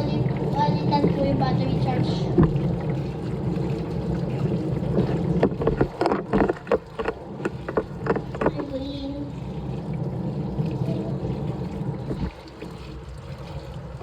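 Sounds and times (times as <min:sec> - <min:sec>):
washing machine humming: 0:00.0 - 0:14.0
water churning: 0:00.0 - 0:14.0
sharp irregular knocks: 0:02.4 - 0:02.7, 0:05.0 - 0:08.8.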